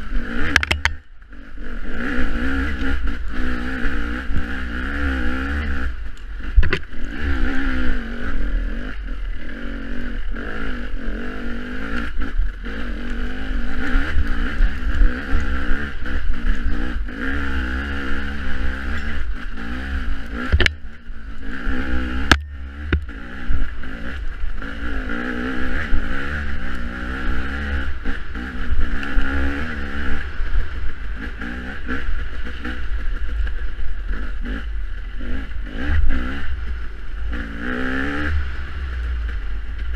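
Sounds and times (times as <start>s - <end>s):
dirt bike engine revving: 0.0s - 39.9s
sharp clicks: 0.4s - 1.3s, 20.4s - 21.0s.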